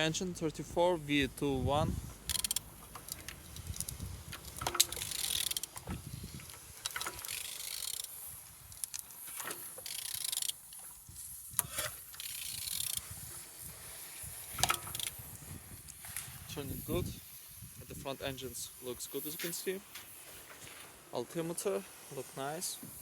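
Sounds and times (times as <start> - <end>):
ratchet clicking: 2.2 - 5.9, 6.8 - 13.2, 14.5 - 15.2
metal clicks and scraping: 2.2 - 13.4, 14.5 - 15.2.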